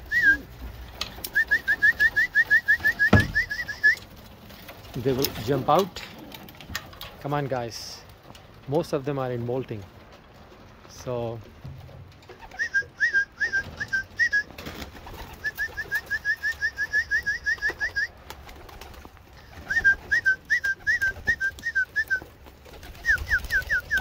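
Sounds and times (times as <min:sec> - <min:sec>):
bird whistling song: 0:00.0 - 0:00.5, 0:01.2 - 0:04.0, 0:12.4 - 0:14.5, 0:15.3 - 0:18.1, 0:19.6 - 0:22.3, 0:22.9 - 0:24.0.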